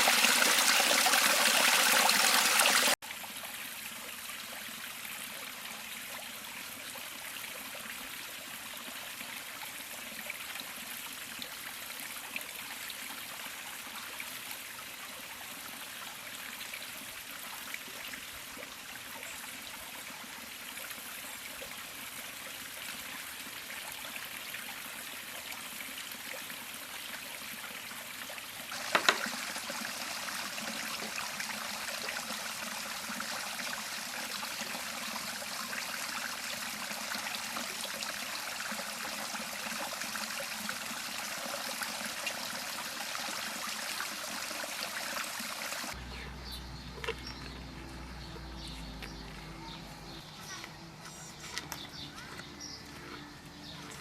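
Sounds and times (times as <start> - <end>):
river flowing over stones: 0.0 - 4.0, 28.7 - 46.0.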